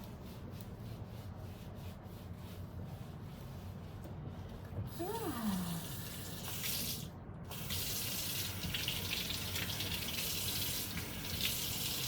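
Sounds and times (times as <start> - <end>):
water running from a tap: 5.6 - 12.0.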